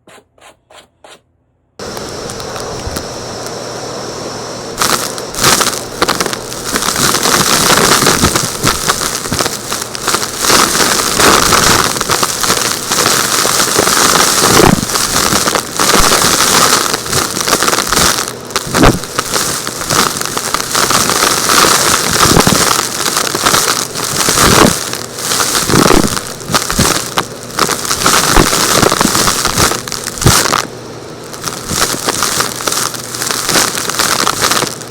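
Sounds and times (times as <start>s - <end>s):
vacuum cleaner air rush: 1.8s - 34.9s
debris crackling and rattling: 4.8s - 30.6s.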